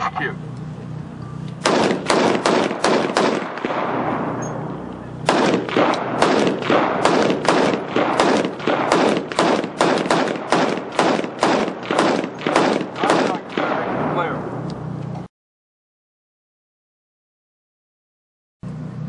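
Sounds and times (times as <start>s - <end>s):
rapid gunfire: 1.6s - 4.1s, 5.2s - 14.3s.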